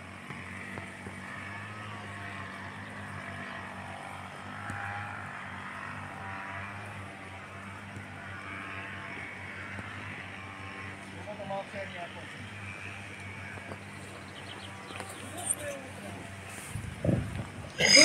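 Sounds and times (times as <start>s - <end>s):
vehicle engines idling: 0.0s - 18.0s.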